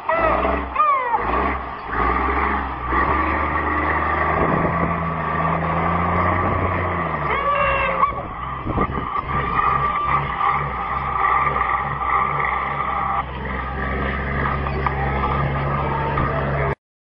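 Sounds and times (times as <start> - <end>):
voices shouting: 0.0 - 3.6, 7.0 - 8.6
heavy truck engine: 0.0 - 16.8.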